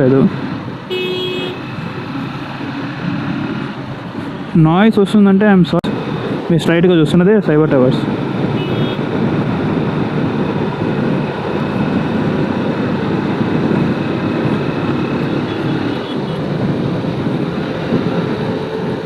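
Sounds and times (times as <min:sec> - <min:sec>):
road traffic: 0:00.0 - 0:19.0
wind rushing over microphone: 0:01.6 - 0:19.0
motorcycle engine: 0:07.9 - 0:19.0.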